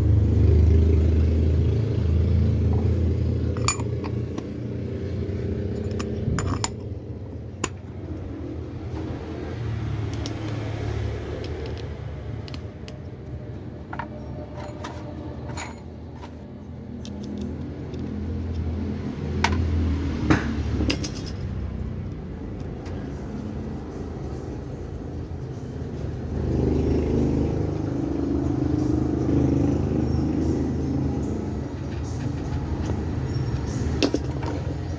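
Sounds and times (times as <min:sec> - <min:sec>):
low engine rumble: 0:00.0 - 0:34.9
metallic clinks: 0:02.8 - 0:04.6, 0:05.5 - 0:07.9, 0:10.1 - 0:10.6, 0:14.0 - 0:16.4, 0:20.8 - 0:21.6, 0:31.9 - 0:34.9.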